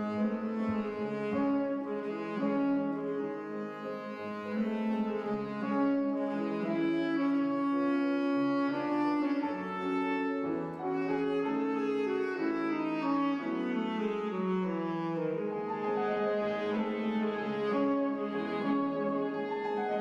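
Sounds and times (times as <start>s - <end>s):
grand piano accompaniment: 0.0s - 20.0s
soprano saxophone: 0.0s - 20.0s
tenor saxophone: 0.0s - 20.0s.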